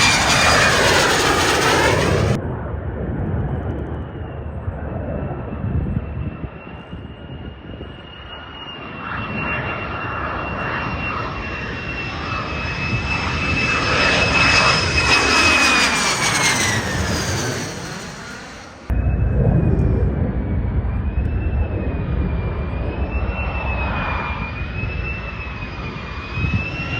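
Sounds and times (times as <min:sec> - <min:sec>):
jet passing overhead: 0:00.0 - 0:26.9.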